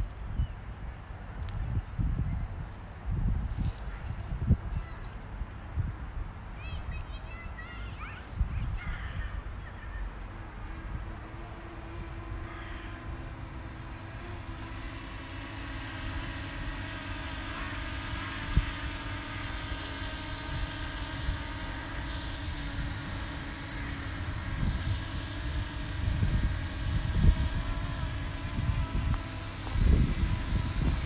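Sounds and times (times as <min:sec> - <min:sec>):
wind buffeting microphone: 0:01.5 - 0:06.2, 0:08.3 - 0:31.0
drone propellers whining: 0:09.2 - 0:31.0.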